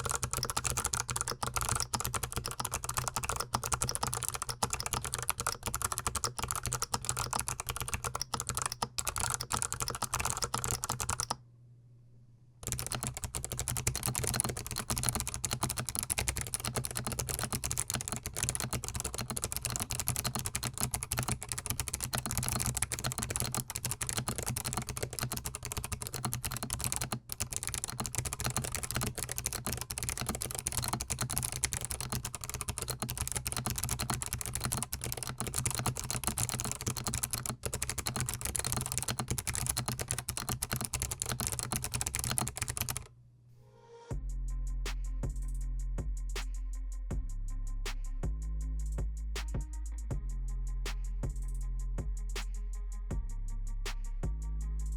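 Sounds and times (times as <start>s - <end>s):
mechanical keyboard typing: 0.0s - 11.4s, 12.6s - 43.1s.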